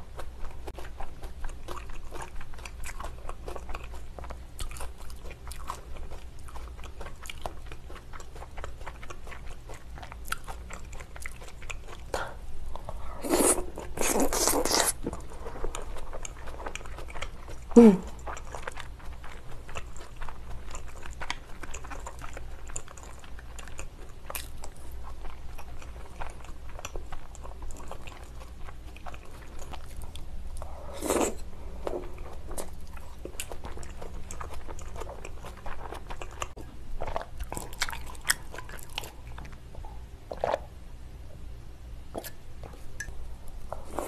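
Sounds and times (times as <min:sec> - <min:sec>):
wet chewing and lip-smacking: 0:00.0 - 0:40.7.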